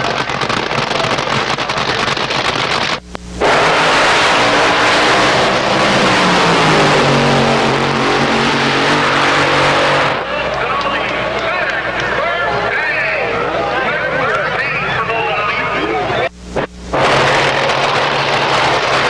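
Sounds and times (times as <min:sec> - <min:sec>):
rough crackling noise: 0:00.0 - 0:11.8, 0:16.6 - 0:19.0
car engine running loudly: 0:00.0 - 0:13.8, 0:16.8 - 0:19.0.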